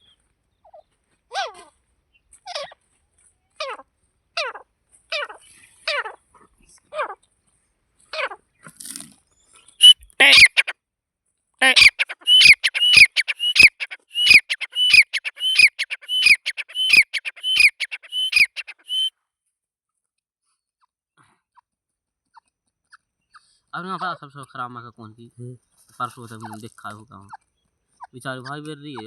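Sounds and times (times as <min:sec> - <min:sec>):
francolin calling: 0:09.8 - 0:10.7, 0:11.6 - 0:19.1.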